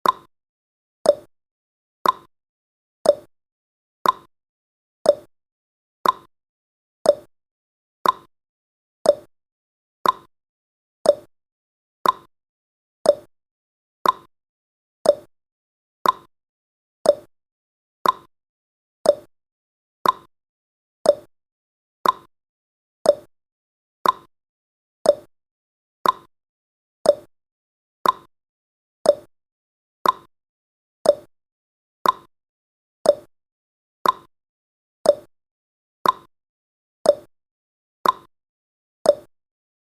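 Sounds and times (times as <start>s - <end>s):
clock ticking: 2.0s - 2.3s, 4.0s - 4.3s, 6.0s - 6.3s, 8.0s - 8.3s, 10.0s - 10.3s, 12.0s - 12.3s, 14.0s - 14.3s, 15.1s - 15.3s, 16.0s - 16.3s, 17.1s - 17.3s, 18.0s - 18.3s, 19.1s - 19.3s, 20.0s - 20.3s, 21.1s - 21.3s, 22.0s - 22.3s, 24.0s - 24.3s, 26.0s - 26.3s, 28.0s - 28.3s, 29.1s - 29.3s, 30.0s - 30.3s, 31.1s - 31.3s, 32.0s - 32.3s, 33.1s - 33.3s, 34.0s - 34.3s, 35.1s - 35.3s, 36.0s - 36.3s, 38.0s - 38.3s, 39.1s - 39.3s.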